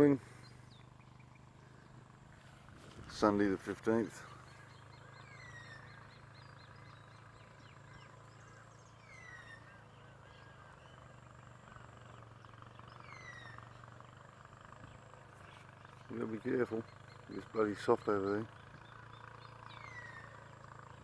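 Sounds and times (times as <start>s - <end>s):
steady low hum: 0.0s - 21.0s
high bird chirps: 4.2s - 21.0s.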